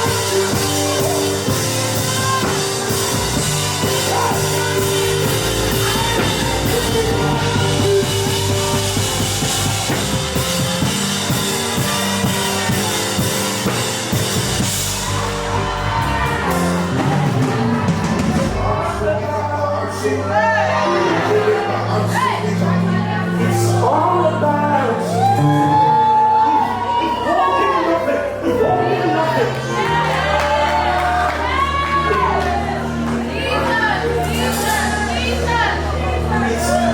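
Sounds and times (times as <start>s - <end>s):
drum kit beat: 0.0s - 18.9s
worship band music: 0.0s - 36.9s.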